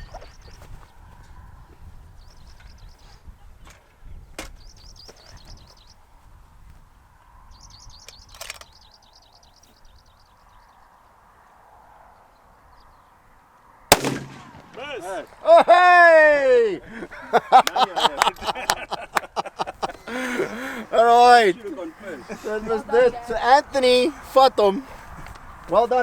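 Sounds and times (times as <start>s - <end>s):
wind rumble on microphone: 0.0s - 11.4s, 24.8s - 26.0s.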